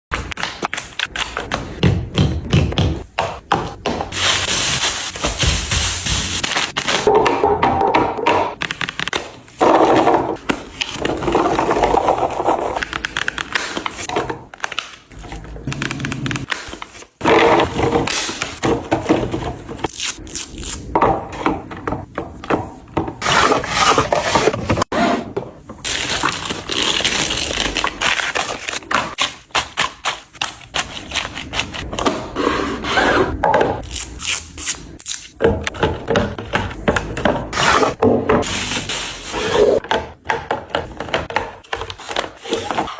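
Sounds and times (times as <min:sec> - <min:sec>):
containers tapping and scraping: 0:39.7 - 0:42.9.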